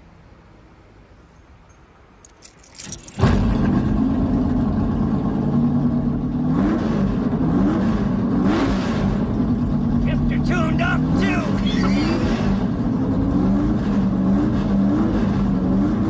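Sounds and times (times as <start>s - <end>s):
car engine idling: 2.9s - 6.5s, 7.1s - 16.0s.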